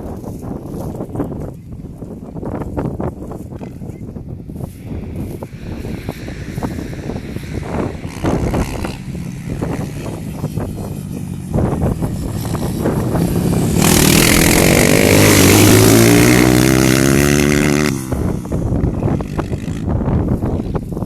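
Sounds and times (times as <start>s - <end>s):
dirt bike engine revving: 5.8s - 19.9s.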